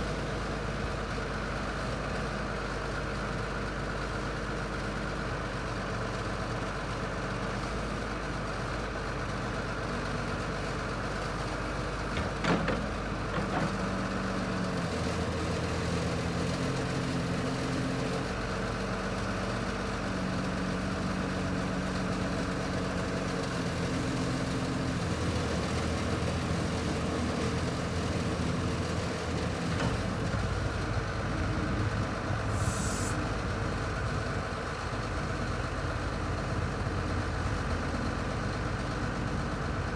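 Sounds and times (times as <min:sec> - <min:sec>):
excavator diesel engine running: 0:00.0 - 0:39.9
brief high hiss: 0:32.4 - 0:33.3.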